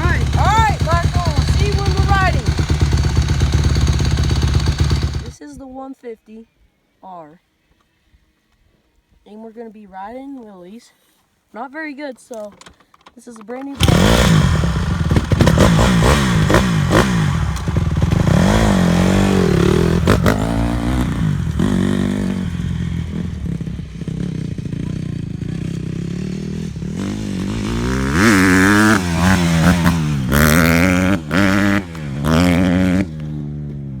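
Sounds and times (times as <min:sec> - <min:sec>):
dirt bike engine revving: 0:00.0 - 0:05.4, 0:13.8 - 0:34.0.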